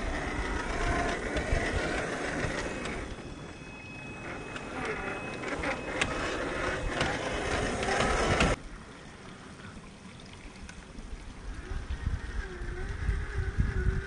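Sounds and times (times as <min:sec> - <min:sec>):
toy truck drivetrain whirring: 0:00.0 - 0:08.6, 0:11.5 - 0:14.0
tyres scraping and crunching: 0:00.0 - 0:08.6
steady background noise: 0:00.0 - 0:14.0.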